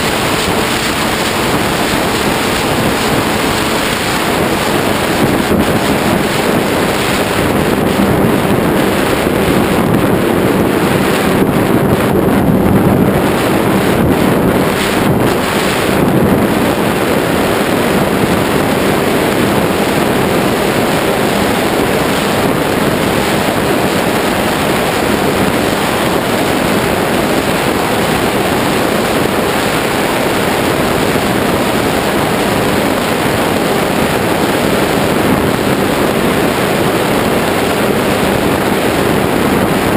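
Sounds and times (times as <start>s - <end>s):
electric motor and propeller hum: 0.0s - 39.9s
wind rush on microphone: 0.0s - 39.9s.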